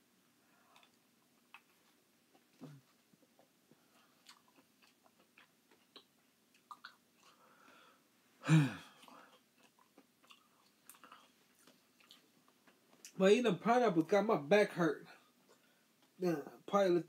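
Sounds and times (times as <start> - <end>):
wet chewing mouth clicks: 0.7 - 7.4, 9.0 - 13.2.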